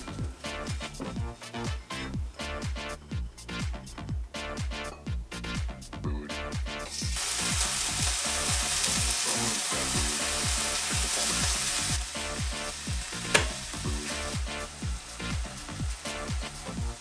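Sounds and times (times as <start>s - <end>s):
electronic music with steady beat: 0.0s - 17.0s
chicken sizzling in hot oil: 6.9s - 17.0s.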